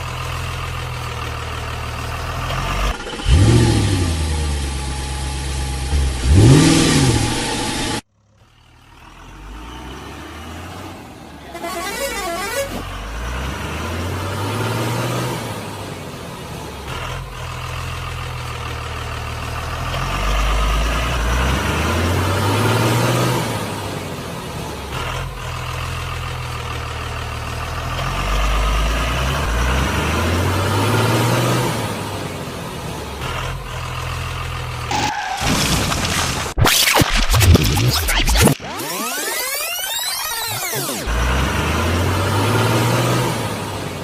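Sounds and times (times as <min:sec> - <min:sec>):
vehicle engine revving: 0:00.0 - 0:35.7, 0:37.3 - 0:44.0
horn-like sound: 0:11.5 - 0:12.9.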